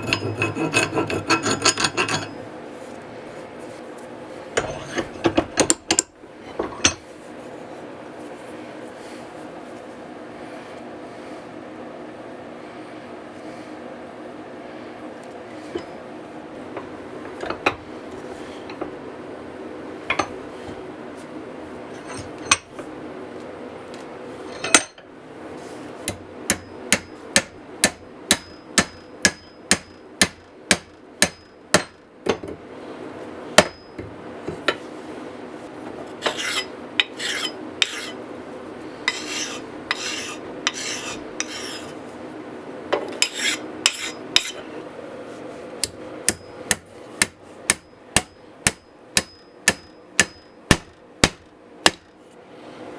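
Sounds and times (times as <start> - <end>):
steady hum: 0.0 - 52.9
rasping strokes: 36.2 - 38.2, 39.1 - 42.0, 43.2 - 44.6.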